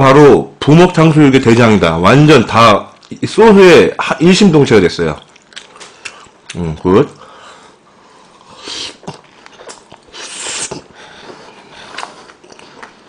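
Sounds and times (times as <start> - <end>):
person chewing food: 5.0 - 13.0
wet mouth clicks: 5.2 - 7.2, 8.4 - 10.9.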